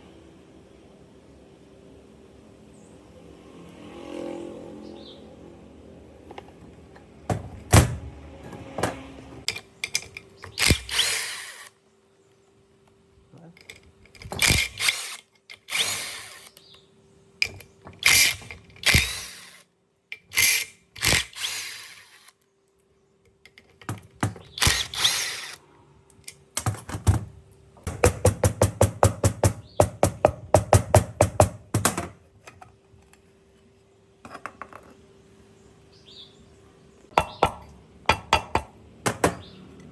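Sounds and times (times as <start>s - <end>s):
power tool bursts: 10.5s - 11.7s, 14.4s - 16.5s, 18.0s - 19.6s, 20.3s - 22.4s, 24.5s - 25.6s.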